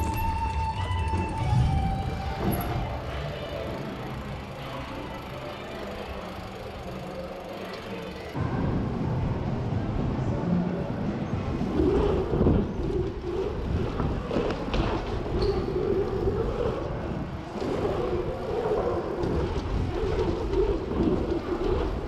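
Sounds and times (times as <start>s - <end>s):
bike knocks and rattles: 0.0s - 3.2s
bike tyres rumbling: 0.0s - 8.4s, 9.0s - 22.0s.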